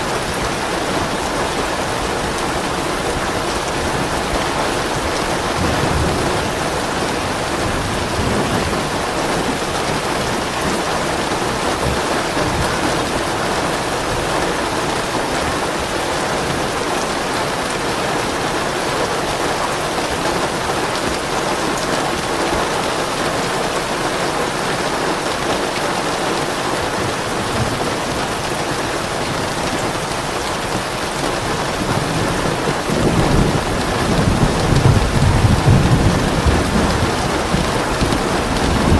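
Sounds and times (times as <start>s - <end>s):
heavy rain pattering: 0.0s - 38.9s
low roll of thunder: 31.8s - 38.9s.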